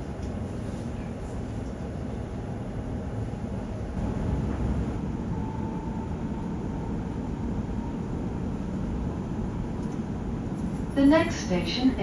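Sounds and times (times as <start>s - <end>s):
electric train rumble inside carriage: 0.0s - 12.0s.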